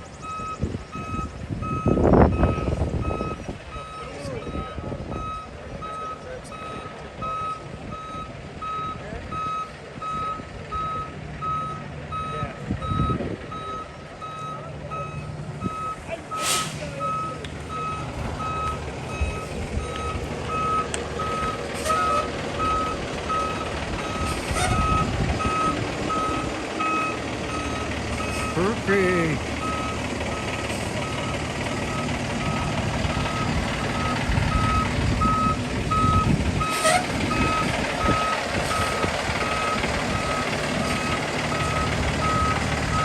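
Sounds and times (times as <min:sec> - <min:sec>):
truck engine running: 0:00.0 - 0:43.0
reversing alarm beeping: 0:00.2 - 0:43.0
air hissing: 0:16.4 - 0:17.0.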